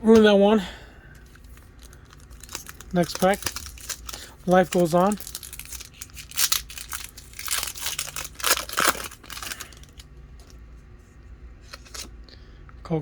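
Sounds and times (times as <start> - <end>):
foil pack tearing and crinkling: 1.2 - 10.6.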